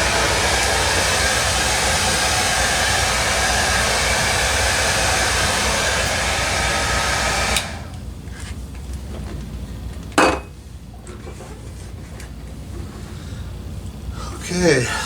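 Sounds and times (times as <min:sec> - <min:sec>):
heat gun blowing: 0:00.0 - 0:08.0.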